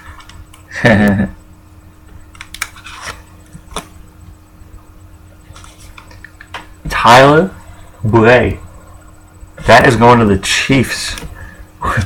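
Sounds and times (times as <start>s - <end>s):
trading cards clicking and rustling: 2.2s - 4.0s.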